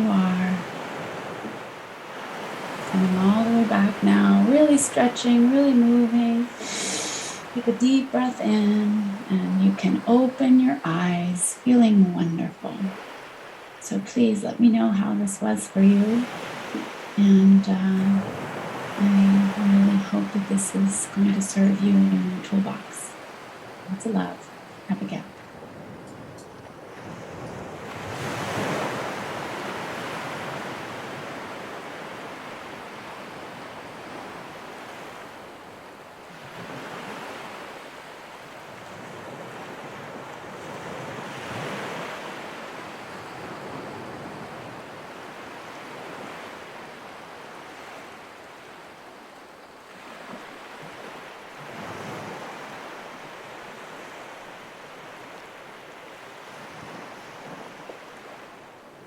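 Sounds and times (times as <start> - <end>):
ocean waves washing in: 0.0 - 59.0.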